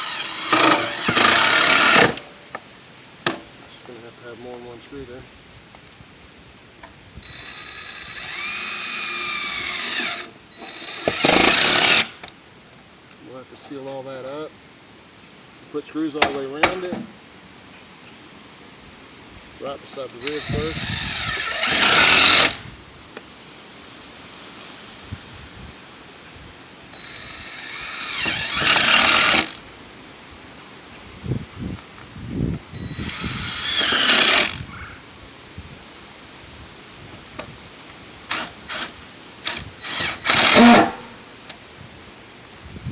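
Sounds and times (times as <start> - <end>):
power driver whining: 0.0 - 2.2, 7.2 - 12.3, 20.2 - 22.7, 26.9 - 29.6, 32.8 - 34.7, 38.3 - 41.1.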